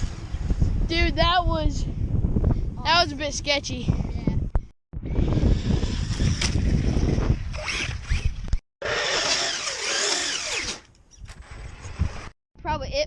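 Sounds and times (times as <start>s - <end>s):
rc car motor whine: 5.0s - 12.3s.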